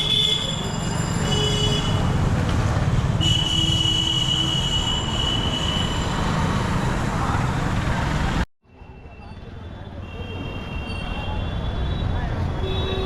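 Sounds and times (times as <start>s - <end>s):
high wheel squeal: 0.0s - 1.6s.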